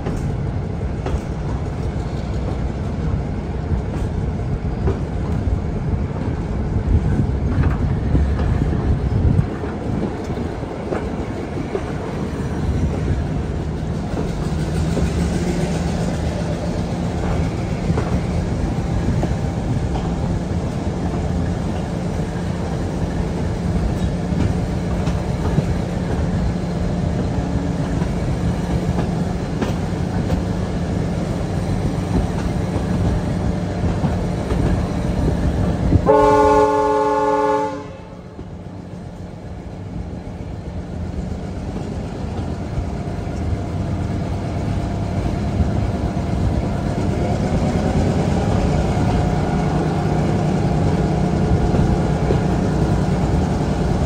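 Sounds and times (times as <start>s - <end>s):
train wheels rumbling on track: 0.0s - 54.0s
locomotive horn: 36.0s - 38.4s.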